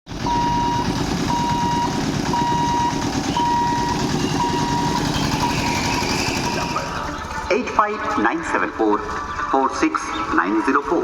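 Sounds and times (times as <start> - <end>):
electronic warning beeper: 0.2 - 7.0.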